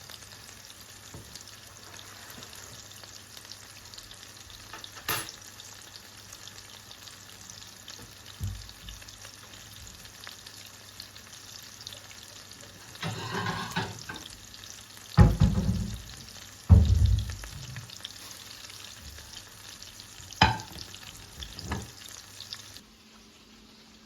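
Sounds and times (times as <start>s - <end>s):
food sizzling in a pan: 0.0s - 24.0s
stirring or scraping: 12.9s - 14.2s.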